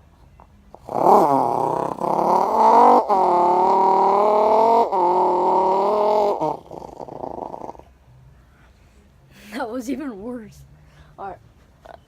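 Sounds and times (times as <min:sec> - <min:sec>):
person imitating car engine: 0:00.8 - 0:07.9.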